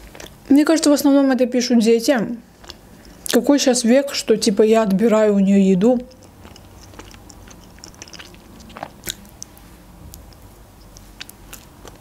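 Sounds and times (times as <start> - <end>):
chewing and mouth noises: 0.0 - 0.5, 2.5 - 3.5, 6.0 - 12.0.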